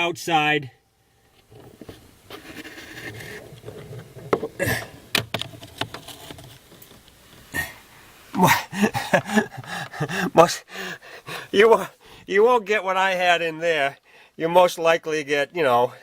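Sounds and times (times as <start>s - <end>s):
handling rustle: 1.4s - 11.9s
sharp clicks and knocks: 3.4s - 7.2s
wordless voice: 7.6s - 16.0s.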